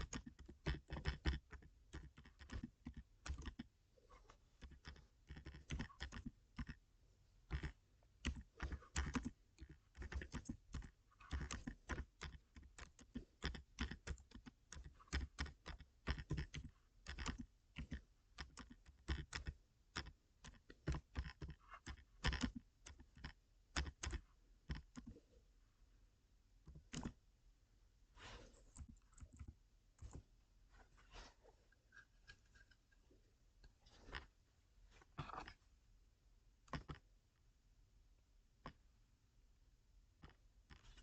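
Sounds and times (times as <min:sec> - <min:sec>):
keyboard typing: 0:00.0 - 0:03.7, 0:04.3 - 0:06.8, 0:07.4 - 0:25.2, 0:26.7 - 0:27.2.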